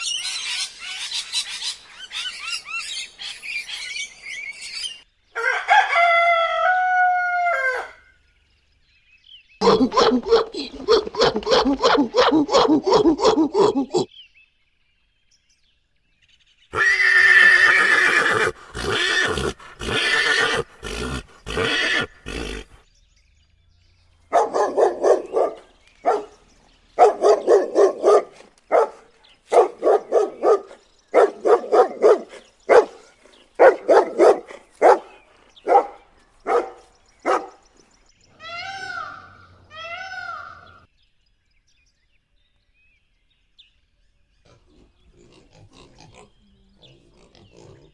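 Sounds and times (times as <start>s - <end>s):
puppy barking: 9.6s - 14.0s, 24.3s - 26.4s, 27.0s - 33.0s, 33.6s - 37.6s
harsh rough animal calls: 9.6s - 14.1s, 16.7s - 22.8s
peacock wailing calls: 16.7s - 22.8s, 38.3s - 40.9s.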